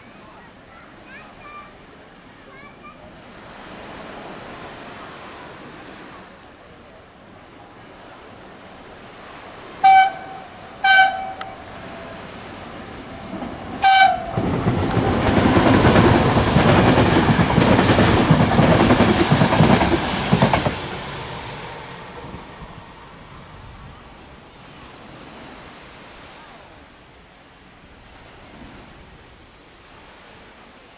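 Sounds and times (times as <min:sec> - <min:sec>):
train rushing past: 0:08.6 - 0:25.6
train horn blasts: 0:09.8 - 0:12.3, 0:13.8 - 0:14.6
wheels clattering over rails: 0:13.3 - 0:22.4.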